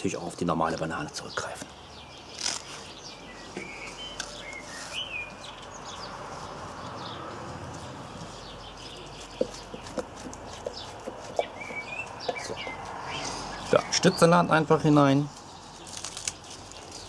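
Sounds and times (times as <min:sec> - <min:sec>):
small birds chirping: 0:00.0 - 0:17.0
steady outdoor hiss: 0:00.0 - 0:17.0.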